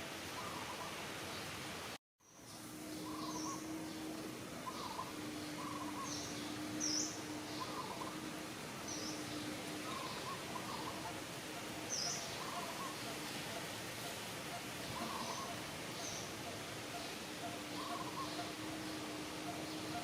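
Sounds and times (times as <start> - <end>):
steady hiss: 0.0 - 20.0
bird chirps and calls: 2.3 - 8.2, 8.8 - 20.0.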